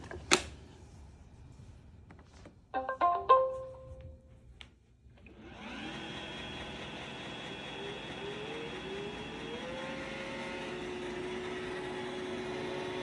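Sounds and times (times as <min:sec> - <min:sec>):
robot vacuum motor whirring: 0:05.4 - 0:13.0.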